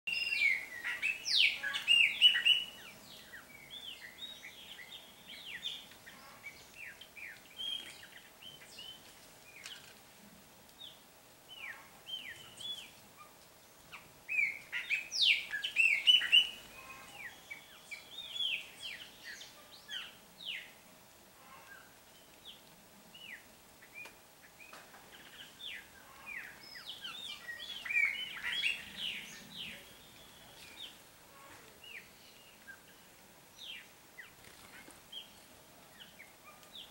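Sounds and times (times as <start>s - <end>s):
bird chirps and calls: 0.1s - 9.0s, 13.9s - 20.7s, 25.1s - 33.0s.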